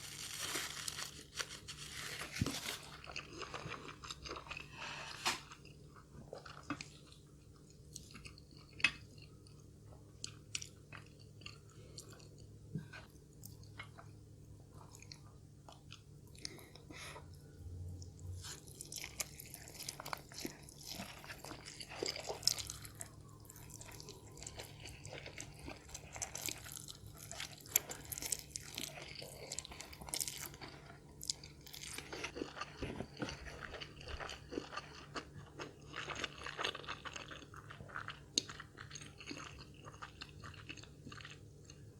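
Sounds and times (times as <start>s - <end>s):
person chewing crunchy food: 0.0s - 41.9s.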